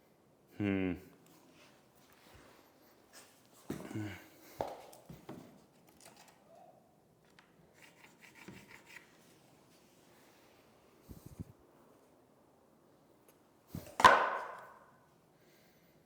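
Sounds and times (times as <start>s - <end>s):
person grunting: 0.6s - 1.1s.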